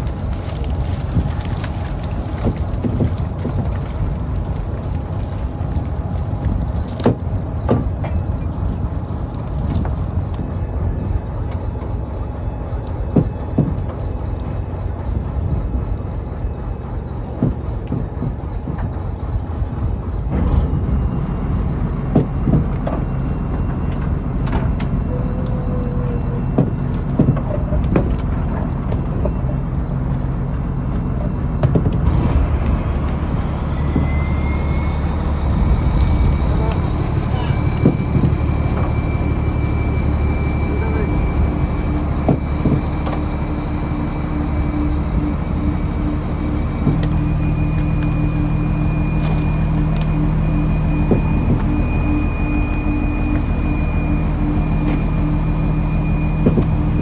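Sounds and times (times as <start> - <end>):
boat engine running: 0.0 - 57.0
knocks and clanks: 0.4 - 12.0, 13.0 - 25.7, 26.4 - 57.0
rising whine: 30.2 - 57.0.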